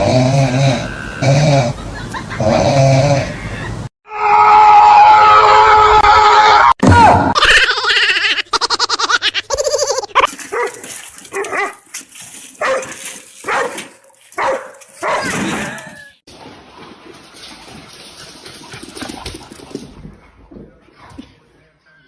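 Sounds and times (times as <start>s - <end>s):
dog barking and yipping: 10.2s - 11.8s, 12.6s - 16.0s.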